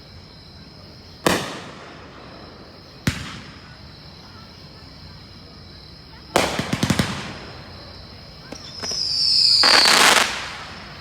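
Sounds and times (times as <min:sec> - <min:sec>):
firework shells bursting: 0:06.4 - 0:07.7, 0:08.5 - 0:11.0.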